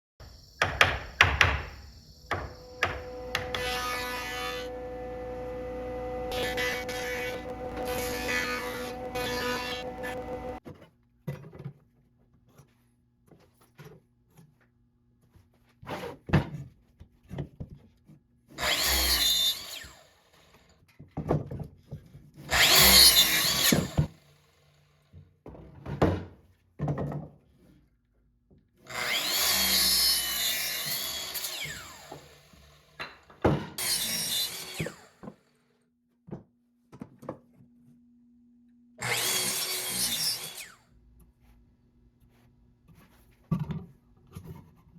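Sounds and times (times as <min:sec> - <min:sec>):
electric power tool cutting wood: 0:02.3 - 0:10.6, 0:18.6 - 0:20.1, 0:22.5 - 0:24.4, 0:28.9 - 0:33.2, 0:33.8 - 0:35.4, 0:39.0 - 0:40.8.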